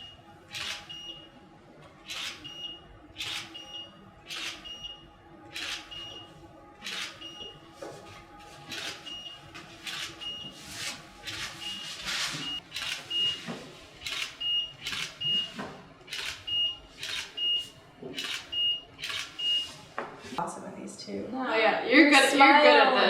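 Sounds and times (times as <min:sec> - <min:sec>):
camera focus beep: 0:12.4 - 0:13.4, 0:14.0 - 0:19.7.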